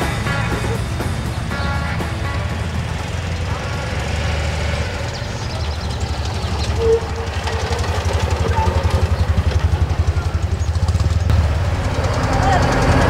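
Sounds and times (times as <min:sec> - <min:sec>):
small vehicle engine running: 0:00.0 - 0:13.0.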